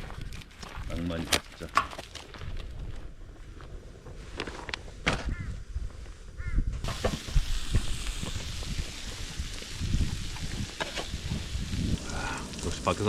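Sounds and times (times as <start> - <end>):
steady hiss: 6.8 - 13.0.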